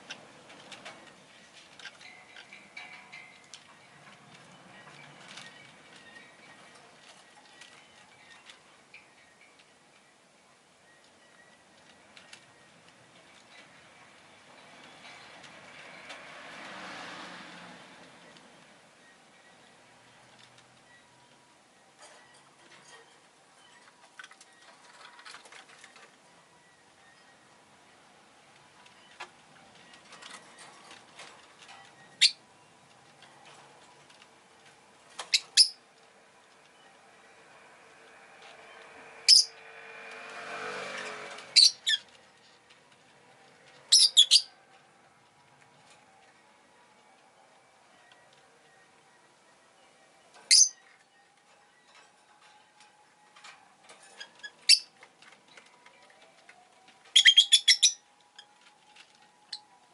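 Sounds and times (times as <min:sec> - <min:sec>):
bird chirping: 0:28.8 - 0:33.6, 0:35.0 - 0:39.9, 0:41.1 - 0:42.6, 0:43.4 - 0:44.6, 0:47.9 - 0:55.0, 0:57.0 - 0:58.6
lovebird shrill calls: 0:35.3 - 0:35.8, 0:39.3 - 0:39.5, 0:41.6 - 0:42.0, 0:50.5 - 0:50.8, 0:57.2 - 0:58.0.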